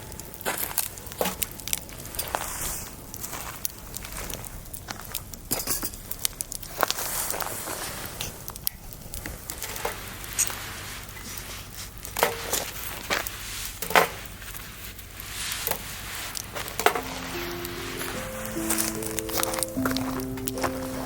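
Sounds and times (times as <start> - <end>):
faint background hiss: 12.7 - 21.0
soft music notes: 16.9 - 21.0.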